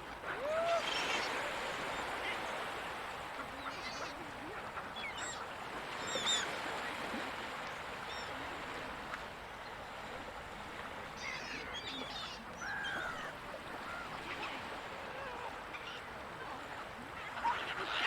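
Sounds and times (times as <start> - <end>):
ocean surf: 0.0 - 18.0
gulls calling: 0.1 - 6.6, 11.2 - 18.0.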